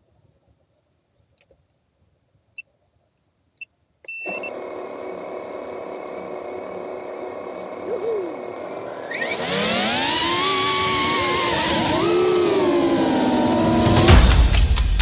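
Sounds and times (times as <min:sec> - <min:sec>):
drone motors and propellers whirring: 0:04.1 - 0:15.0.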